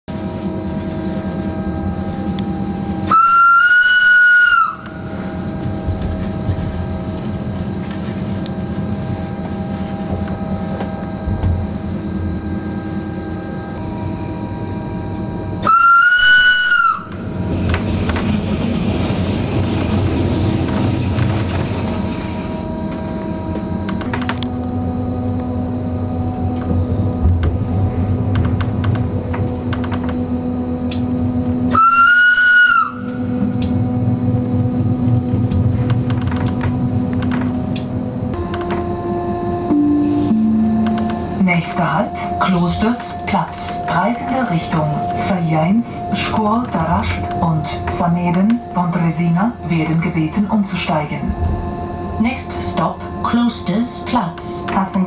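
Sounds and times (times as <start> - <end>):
electric train hum: 0.0 - 55.0
rail noise: 0.1 - 55.0
train horn blast: 0.4 - 5.5, 15.6 - 17.4, 22.3 - 35.8, 36.8 - 48.8.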